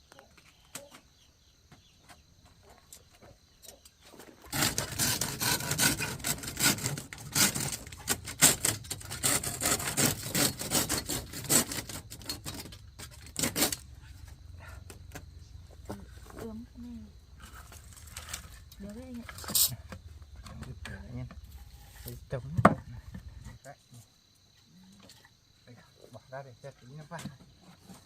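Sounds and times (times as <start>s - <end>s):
hand saw cutting wood: 4.5s - 13.9s.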